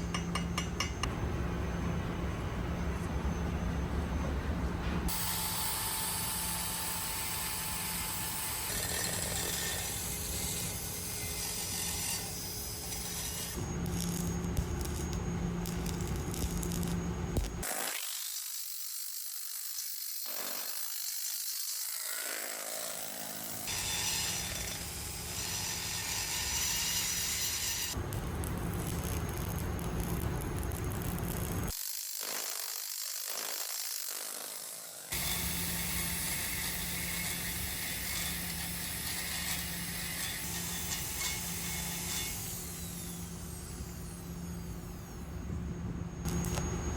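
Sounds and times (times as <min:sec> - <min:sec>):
low hum: 0:00.0 - 0:05.4
arc welding hiss: 0:05.1 - 0:21.5, 0:28.1 - 0:45.0.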